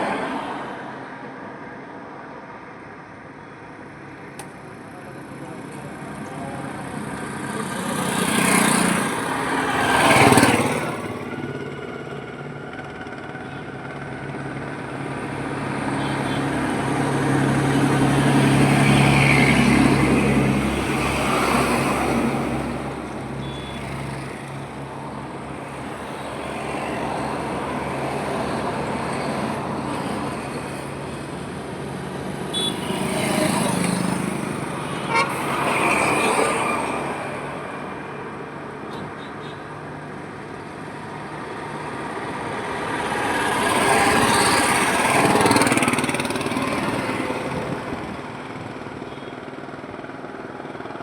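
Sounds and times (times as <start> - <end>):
vehicles passing: 0.0 - 51.0.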